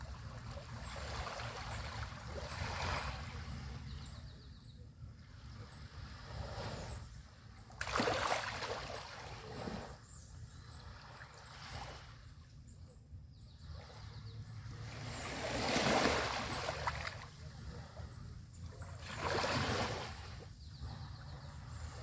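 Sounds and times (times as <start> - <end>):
small waves breaking on beach: 0.0 - 4.1, 7.8 - 10.0, 14.7 - 18.2, 18.8 - 22.0
low rumble of water: 0.0 - 22.0.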